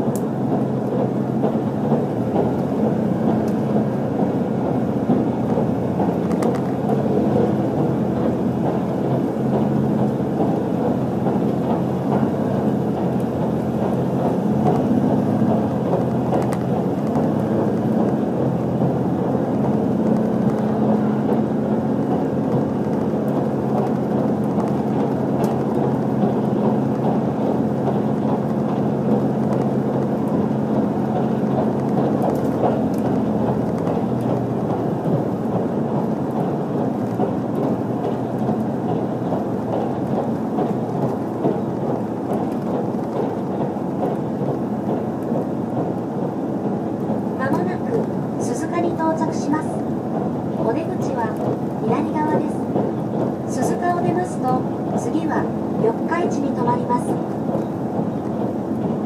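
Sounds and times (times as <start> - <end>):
low engine drone: 0.0 - 59.0
train wheels rumbling on rail: 0.0 - 59.0.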